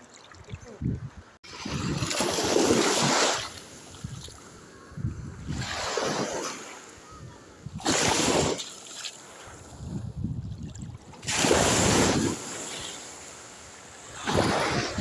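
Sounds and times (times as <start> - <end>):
wind buffeting microphone: 0.6 - 2.8, 4.0 - 6.2, 9.6 - 12.5, 14.1 - 15.0
sea waves washing in: 1.4 - 10.2, 11.0 - 15.0.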